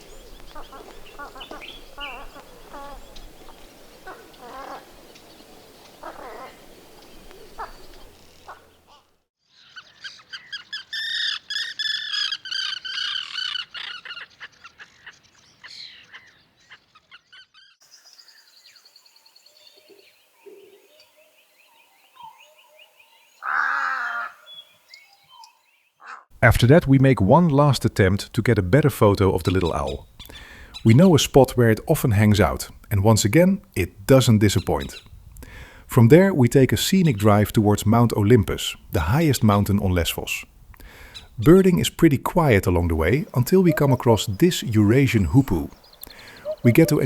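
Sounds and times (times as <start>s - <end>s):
harsh bird call: 0.0s - 5.0s, 43.0s - 47.0s
bird trilling: 0.0s - 9.0s, 9.6s - 17.8s, 43.2s - 47.0s
birds chirping: 0.0s - 47.0s.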